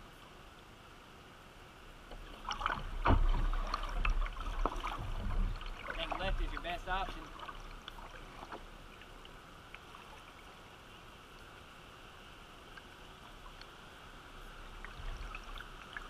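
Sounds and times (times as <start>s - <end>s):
river water rushing: 0.0s - 16.0s
faint drips and ticks: 2.1s - 10.7s, 12.7s - 13.8s.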